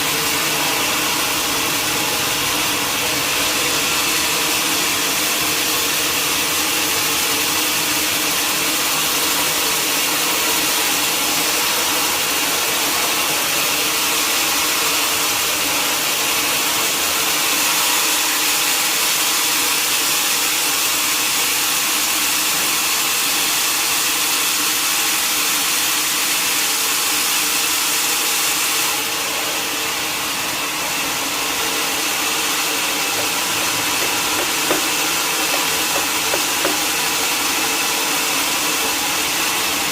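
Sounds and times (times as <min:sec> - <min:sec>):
sawmill saw whining: 0:29.4 - 0:38.2.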